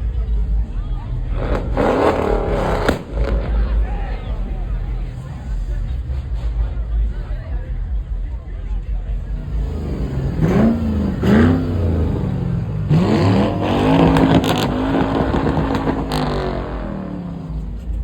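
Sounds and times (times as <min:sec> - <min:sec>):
car engine revving: 0:00.0 - 0:08.3, 0:09.0 - 0:18.0
sharp exhaust cracks: 0:01.3 - 0:05.6, 0:09.6 - 0:18.0.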